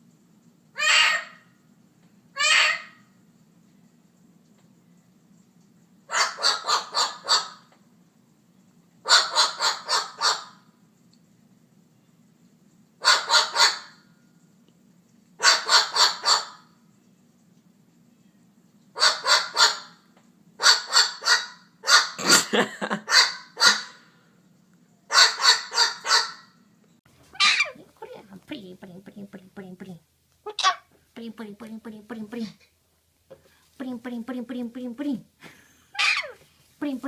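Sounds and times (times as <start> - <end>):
faint low hum: 0.0 - 9.8, 10.6 - 15.8, 16.6 - 19.3, 21.6 - 37.0
parrot barking calls: 0.8 - 1.5, 2.4 - 3.1, 6.1 - 7.7, 9.0 - 10.7, 13.0 - 14.0, 15.4 - 16.7, 18.9 - 22.2, 23.0 - 24.1, 25.1 - 26.6, 27.3 - 27.8, 30.5 - 30.9, 35.9 - 36.4.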